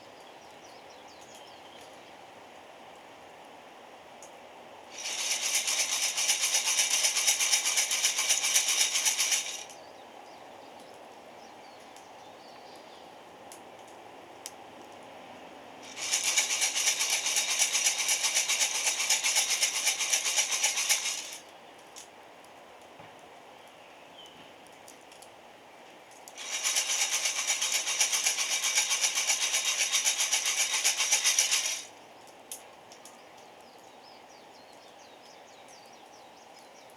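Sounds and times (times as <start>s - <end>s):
coffee beans rattling in roaster: 5.0s - 9.7s, 15.9s - 21.4s, 26.4s - 31.9s.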